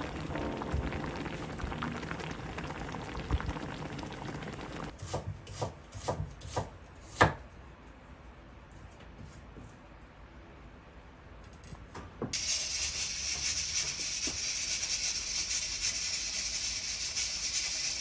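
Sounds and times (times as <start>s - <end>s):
steady kitchen hiss: 0.0s - 7.3s, 12.3s - 18.0s.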